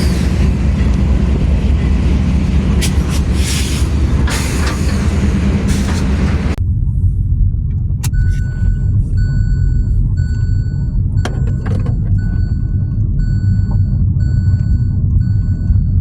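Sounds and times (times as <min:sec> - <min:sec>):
low vehicle rumble: 0:00.0 - 0:16.0
electronic beep: 0:08.0 - 0:16.0.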